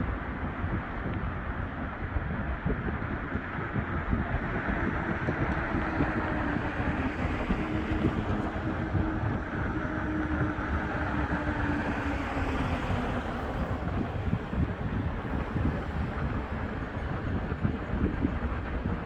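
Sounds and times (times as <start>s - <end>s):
wind on microphone: 0.0s - 19.0s
engine hum: 4.3s - 19.0s.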